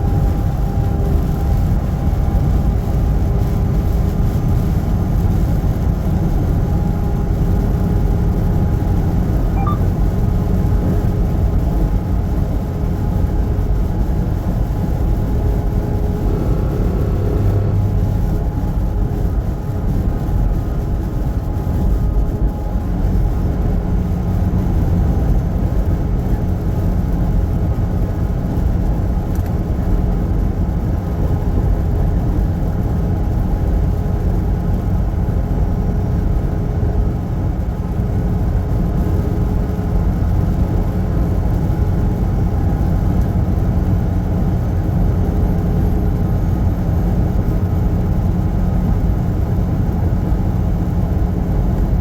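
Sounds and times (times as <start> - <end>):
truck engine and road noise: 0.0 - 52.0
faint hum: 9.4 - 10.4.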